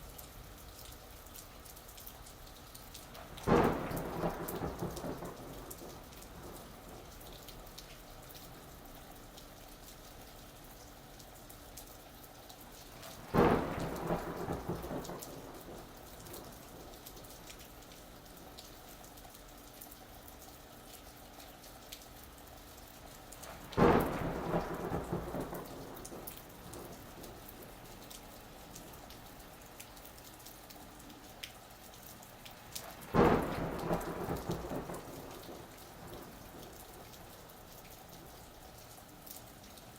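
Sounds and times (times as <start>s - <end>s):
steady rain falling: 0.0s - 39.9s
thunderclaps rumbling: 3.2s - 7.3s, 13.0s - 17.3s, 23.5s - 27.8s, 32.9s - 37.5s.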